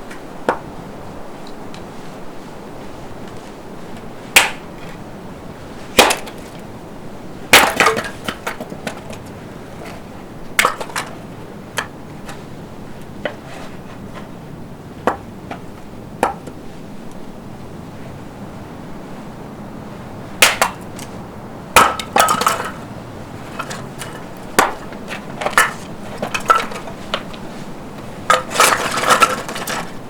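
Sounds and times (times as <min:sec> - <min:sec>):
sharp wooden cracks and snaps: 0:04.4 - 0:04.6, 0:06.0 - 0:06.5, 0:07.6 - 0:09.2, 0:20.4 - 0:21.1, 0:23.5 - 0:27.4.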